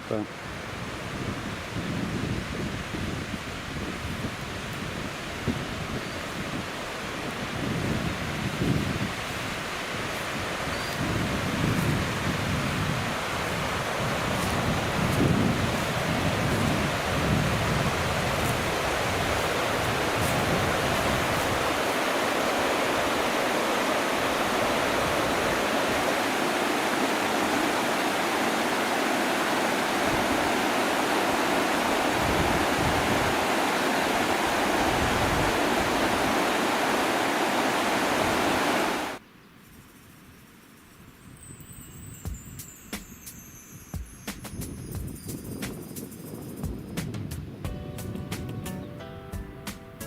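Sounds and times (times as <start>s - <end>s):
river rushing over stones: 2.4s - 39.2s.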